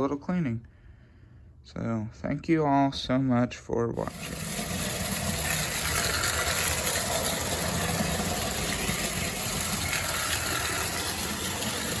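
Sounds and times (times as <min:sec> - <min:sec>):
toy train motor whirring: 0:04.0 - 0:12.0.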